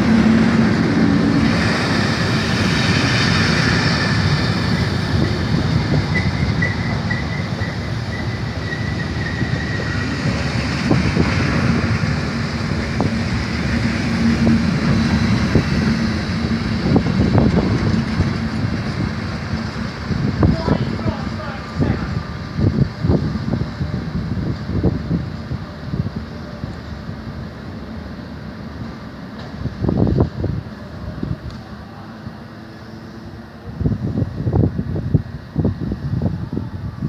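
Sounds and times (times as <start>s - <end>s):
train rumbling past: 0.0s - 37.0s
wheel squeal: 6.0s - 10.5s.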